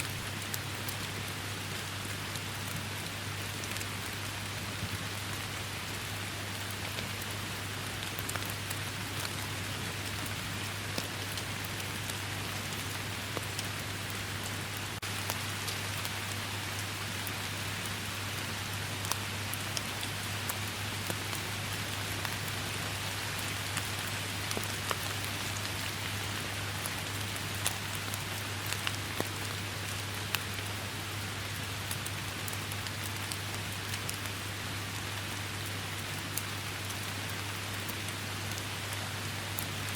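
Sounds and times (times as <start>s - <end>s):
steady rain falling: 0.0s - 39.9s
sharp raindrop ticks: 23.3s - 34.4s.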